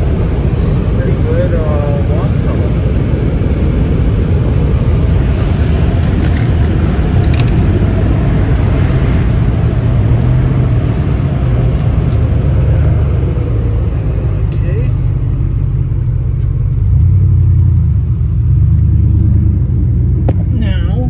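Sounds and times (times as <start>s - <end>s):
car wash machinery rumbling: 0.0s - 21.0s.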